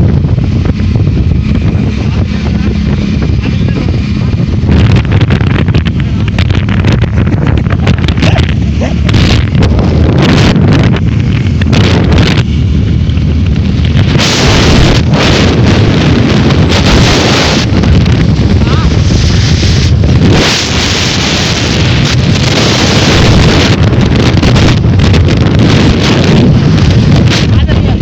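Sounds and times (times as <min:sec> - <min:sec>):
steady low rumble: 0:00.0 - 0:28.0
wind buffeting the microphone: 0:00.0 - 0:28.0.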